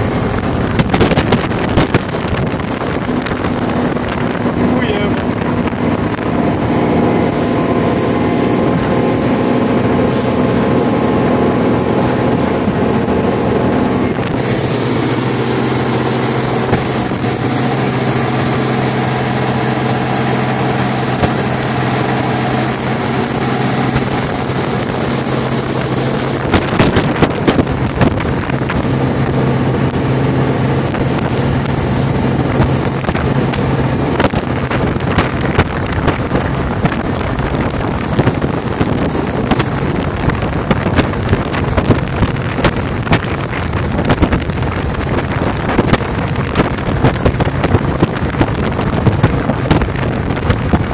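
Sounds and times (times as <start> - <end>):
speedboat engine running: 0.0 - 50.9
wind noise on microphone: 0.0 - 50.9.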